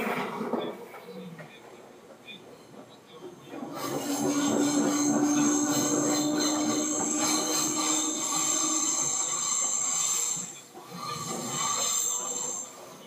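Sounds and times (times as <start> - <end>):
train running noise from on board: 0.0 - 13.0
high wheel squeal: 3.4 - 12.8.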